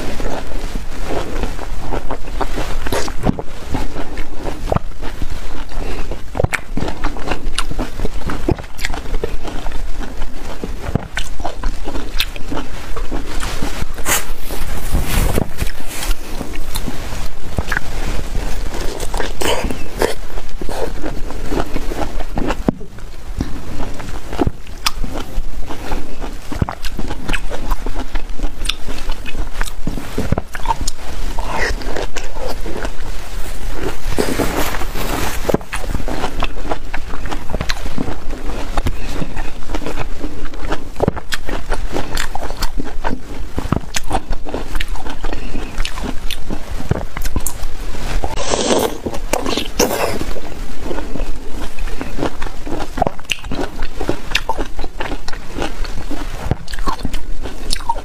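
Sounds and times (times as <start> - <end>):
biting and chewing orange: 0.0 - 58.0.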